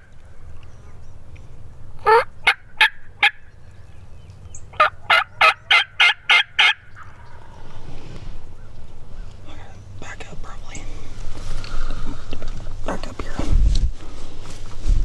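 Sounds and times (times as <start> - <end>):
turkey yelping: 2.0 - 3.4, 4.5 - 7.7.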